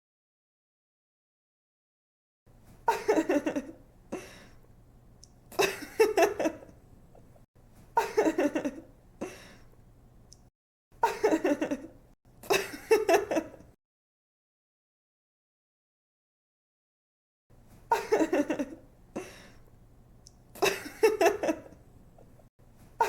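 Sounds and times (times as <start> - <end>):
faint low hum: 2.5 - 13.7
woman giggling: 2.9 - 4.3, 5.5 - 6.7, 8.0 - 8.9, 11.0 - 13.7, 17.9 - 19.4, 20.6 - 21.8.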